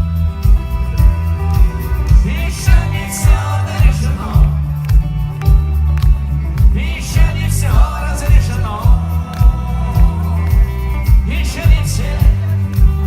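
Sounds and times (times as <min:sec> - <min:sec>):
rock band playing: 0:00.0 - 0:13.0
man singing: 0:01.8 - 0:05.5, 0:06.6 - 0:13.0.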